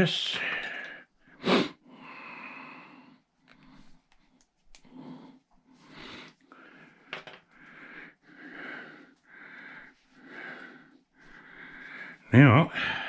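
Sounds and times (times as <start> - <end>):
man breathing: 0.4 - 13.0.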